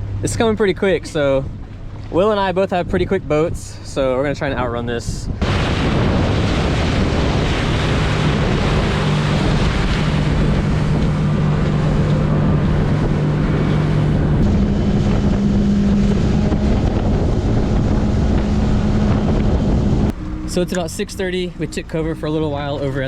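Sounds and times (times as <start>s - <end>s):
motorboat engine running: 0.0s - 23.0s
wind noise on microphone: 0.0s - 23.0s
rushing water: 5.3s - 23.0s.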